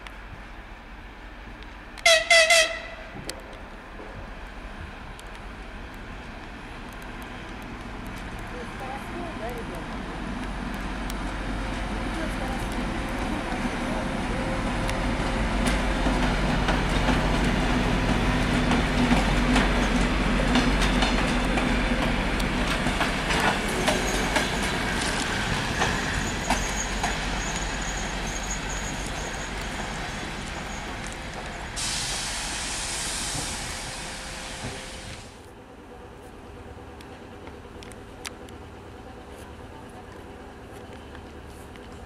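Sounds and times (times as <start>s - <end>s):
diesel locomotive engine droning: 0.0s - 42.0s
wheels clicking over rail joints: 14.8s - 31.8s
thin high wheel squeal: 23.7s - 24.8s, 25.8s - 31.1s
steady hiss: 31.6s - 35.5s.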